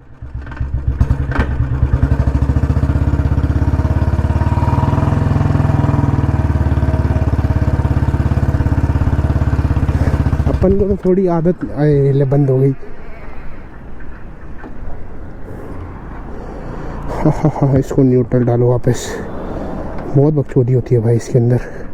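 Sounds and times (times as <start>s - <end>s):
motorcycle engine thumping: 0.2s - 11.0s.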